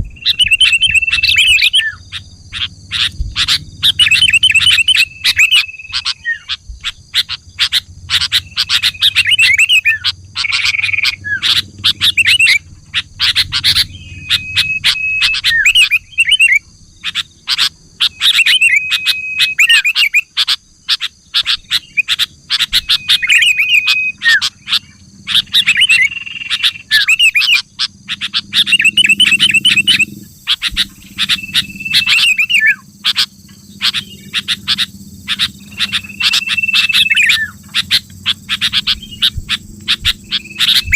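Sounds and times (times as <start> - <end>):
bird chattering and whistling: 0.0 - 40.9.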